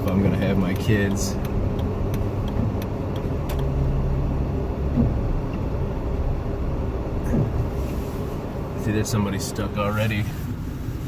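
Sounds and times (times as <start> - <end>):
engine and tyres rumbling: 0.0 - 11.0.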